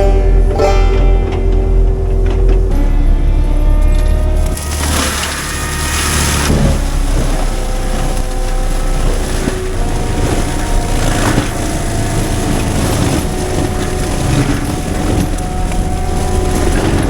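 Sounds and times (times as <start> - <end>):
excavator engine and hydraulics: 0.0 - 17.0
wood cracking: 3.8 - 17.0.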